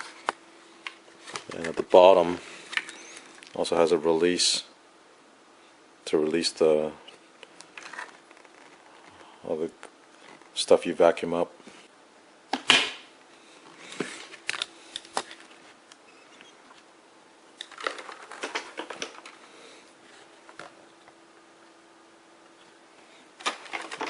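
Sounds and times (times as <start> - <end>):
plastic parts clicking and knocking: 17.6 - 19.4.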